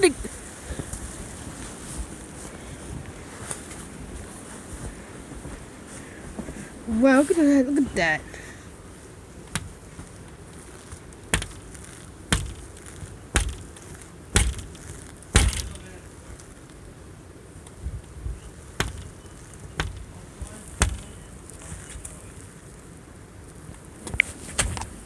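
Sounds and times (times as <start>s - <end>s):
footsteps crunching through snow: 0.0s - 15.2s.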